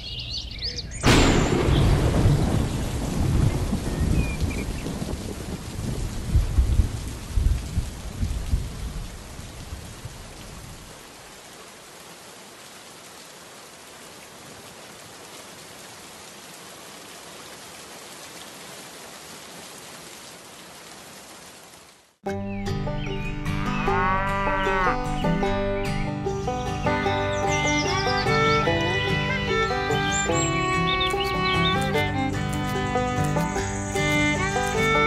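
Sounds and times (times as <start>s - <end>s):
low thunder rumble: 1.0s - 10.2s
rain hiss: 1.0s - 22.2s, 24.7s - 35.0s.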